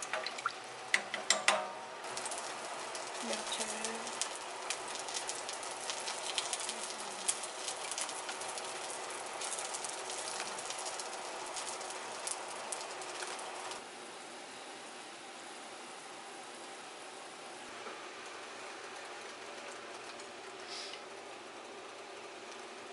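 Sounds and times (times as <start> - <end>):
stew boiling with crackling pops: 0.0 - 13.9, 17.4 - 22.9.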